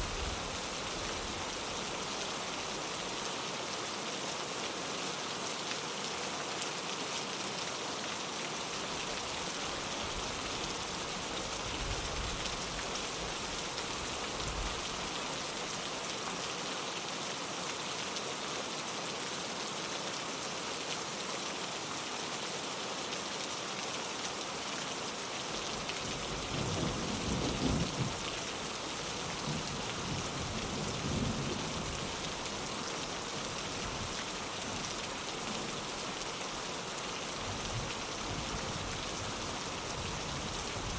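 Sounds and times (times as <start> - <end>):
rain pattering on a window: 25.1 - 40.9
thunder rolling: 26.5 - 28.2.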